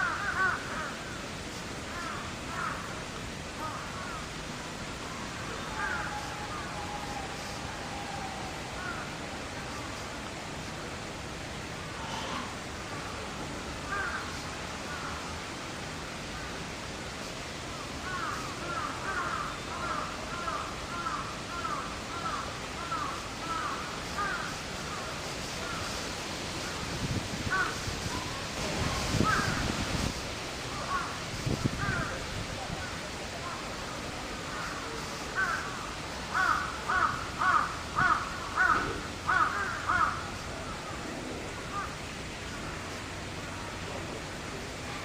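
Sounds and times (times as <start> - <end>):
outdoor background hiss: 0.0 - 45.0
birds calling: 5.5 - 7.6, 18.0 - 26.0, 27.5 - 28.4, 29.0 - 32.2, 34.5 - 41.0.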